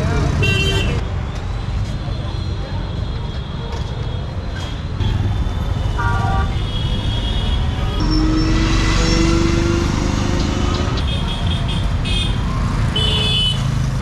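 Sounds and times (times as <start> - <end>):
vehicle engines running: 3.6 - 14.0
longer steady horn tone: 5.0 - 10.1.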